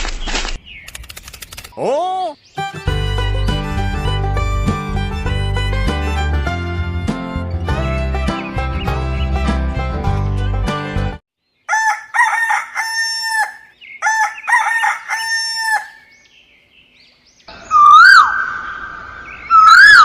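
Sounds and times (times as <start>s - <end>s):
background music: 2.6s - 11.2s
rooster crowing: 11.7s - 16.1s.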